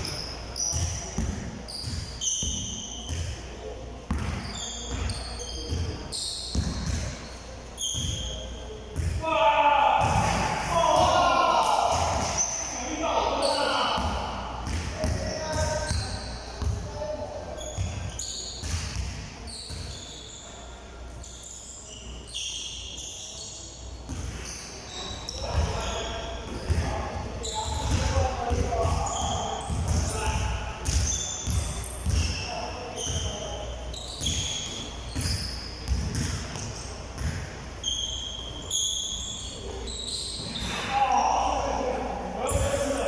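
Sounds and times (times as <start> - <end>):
basketball bouncing on court: 0.0 - 3.4, 4.1 - 7.2, 9.0 - 9.2, 11.8 - 12.4, 14.0 - 16.9, 17.6 - 20.0, 24.1 - 24.4, 27.6 - 33.4, 34.2 - 37.6
shoe squeaks: 0.0 - 3.4, 4.1 - 8.7, 12.0 - 14.0, 14.6 - 41.5
basketball dribbling on court: 27.7 - 32.4, 34.2 - 37.5.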